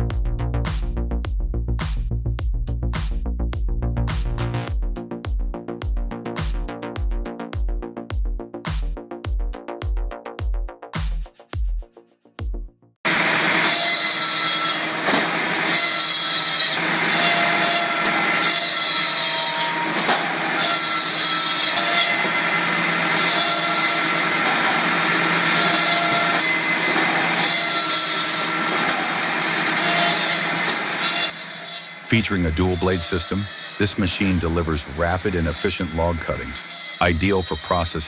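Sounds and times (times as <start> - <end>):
machine sawing through wood: 13.1 - 38.0
saw blade whine: 13.1 - 38.0.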